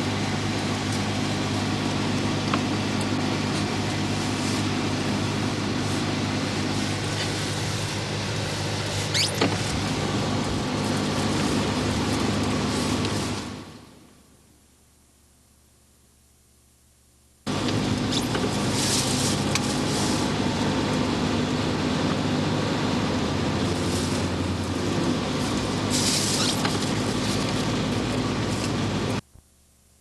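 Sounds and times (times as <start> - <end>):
vehicle running with low hum: 0.0 - 30.0
brief squeak: 9.0 - 9.5.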